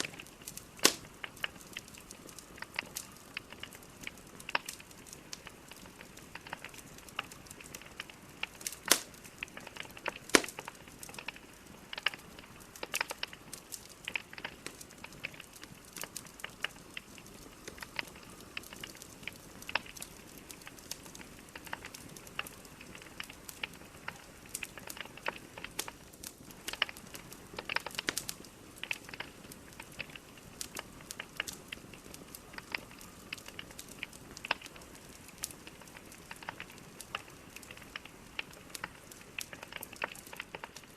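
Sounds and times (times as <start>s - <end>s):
fire crackling and popping: 0.0s - 40.9s
fire hissing: 0.0s - 40.9s.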